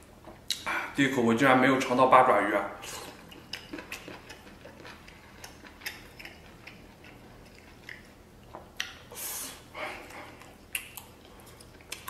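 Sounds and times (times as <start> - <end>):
chewing mouth clicks and smacks: 3.1 - 9.1, 10.0 - 12.0.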